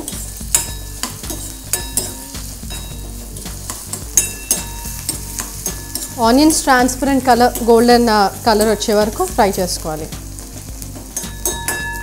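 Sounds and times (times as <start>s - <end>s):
spoon clinking and scraping pan: 0.0s - 9.0s, 11.0s - 12.0s
food sizzling in hot oil: 0.0s - 12.0s.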